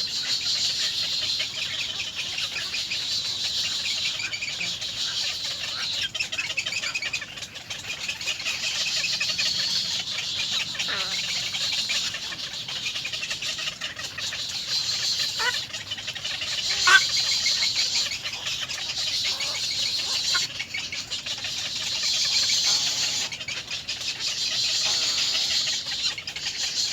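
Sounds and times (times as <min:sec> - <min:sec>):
bird calls and chirps: 0:00.0 - 0:26.9.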